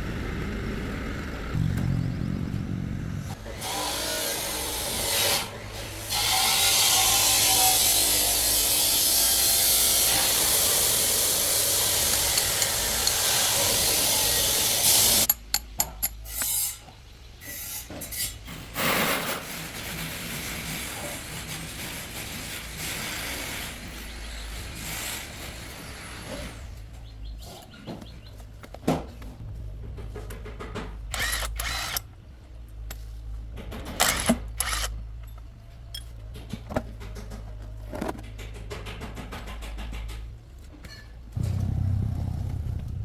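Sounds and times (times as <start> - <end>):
power tool grinding metal: 3.4 - 15.3
tool handling and scraping: 9.6 - 17.0.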